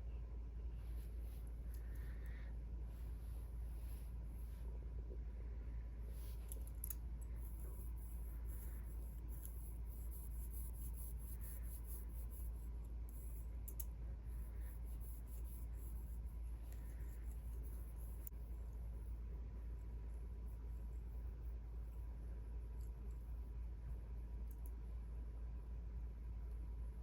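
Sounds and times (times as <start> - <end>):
steady low hum: 0.0 - 27.0
faint scratchy clicks: 13.6 - 14.0, 24.4 - 24.8.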